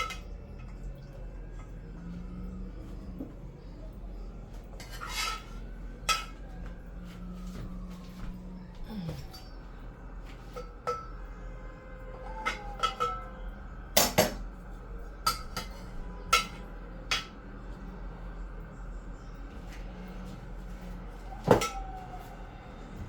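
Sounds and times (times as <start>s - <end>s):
spoon clinking on dishes: 0.0s - 1.8s, 10.3s - 11.4s, 12.1s - 14.5s, 15.2s - 17.4s.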